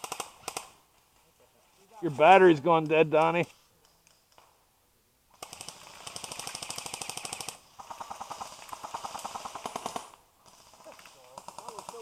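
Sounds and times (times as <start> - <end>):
airsoft guns firing full auto: 0.0 - 0.8, 5.4 - 12.0.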